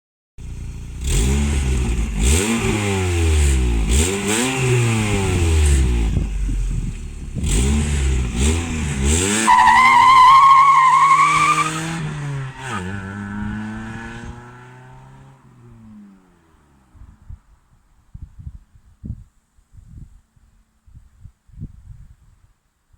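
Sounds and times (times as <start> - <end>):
car exhaust revving: 0.4 - 17.0.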